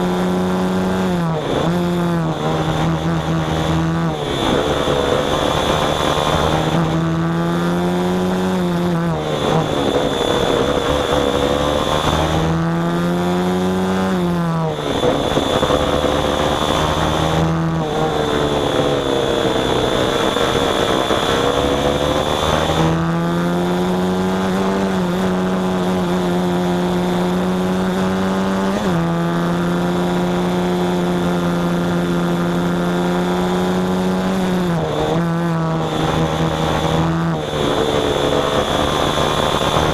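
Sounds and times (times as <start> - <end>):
small engine revving: 0.0 - 39.9.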